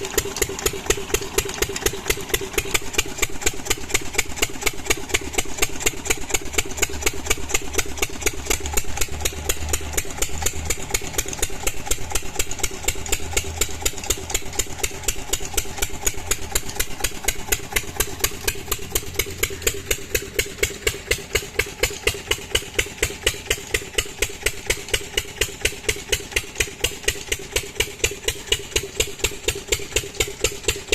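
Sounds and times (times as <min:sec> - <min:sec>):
diesel engine exhaust beats: 0:00.0 - 0:30.9.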